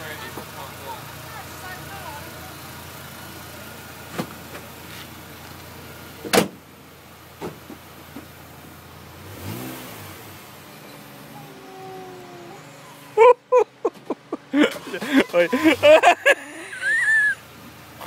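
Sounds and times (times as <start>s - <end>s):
race car engine idling: 0.0s - 9.2s.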